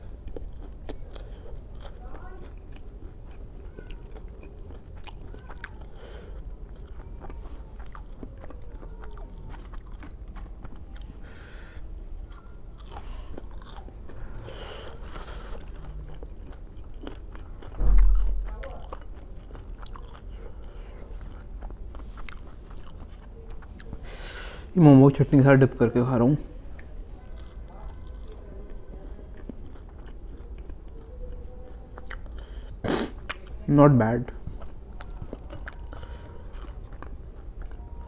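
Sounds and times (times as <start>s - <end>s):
person chewing food: 0.0s - 24.8s, 26.6s - 33.6s, 34.3s - 38.0s
low thump: 17.8s - 18.8s.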